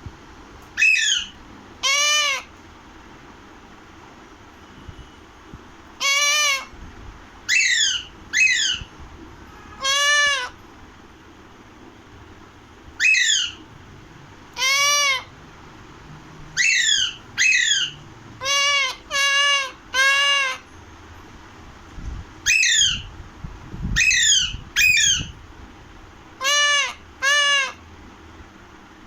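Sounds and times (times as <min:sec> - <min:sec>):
parakeet screeching: 0:00.8 - 0:02.5, 0:06.0 - 0:06.7, 0:07.5 - 0:08.9, 0:09.7 - 0:10.6, 0:13.0 - 0:13.6, 0:14.5 - 0:15.3, 0:16.6 - 0:20.7, 0:22.4 - 0:23.1, 0:24.0 - 0:25.4, 0:26.4 - 0:27.8.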